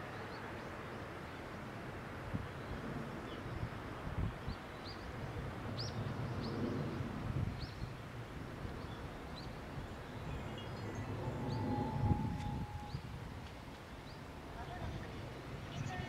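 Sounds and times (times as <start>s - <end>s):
bird chirping: 8.8s - 13.2s.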